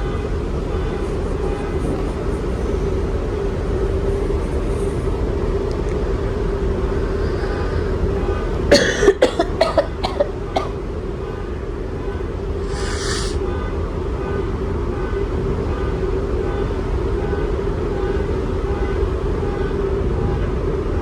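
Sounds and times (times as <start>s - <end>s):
ferry engines droning: 0.4s - 13.2s
sharp short sounds: 12.7s - 13.4s.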